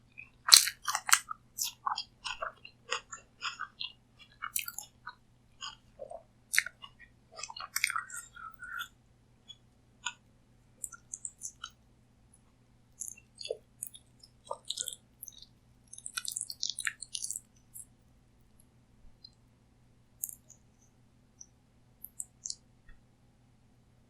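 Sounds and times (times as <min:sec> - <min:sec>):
faint steady hum: 0:00.0 - 0:24.0
chewing food mouth clicks: 0:00.2 - 0:08.9, 0:10.8 - 0:11.8, 0:13.0 - 0:17.9, 0:20.2 - 0:20.6, 0:21.4 - 0:22.6.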